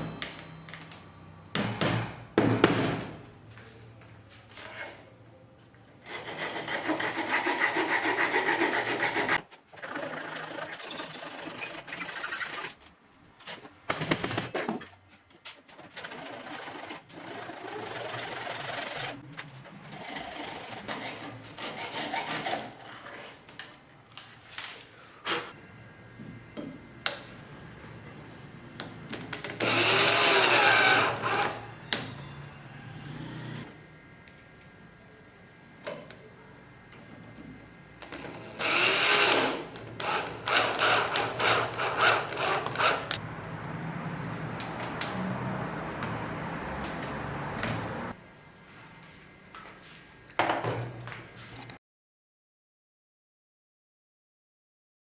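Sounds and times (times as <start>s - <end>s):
power drill running: 16.0s - 19.2s, 29.5s - 33.4s, 38.2s - 43.2s.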